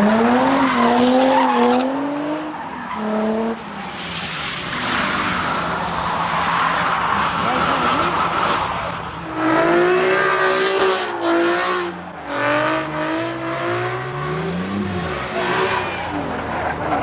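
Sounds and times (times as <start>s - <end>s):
car tires squealing: 0.0s - 9.6s, 14.3s - 17.0s
car engine revving: 4.6s - 17.0s.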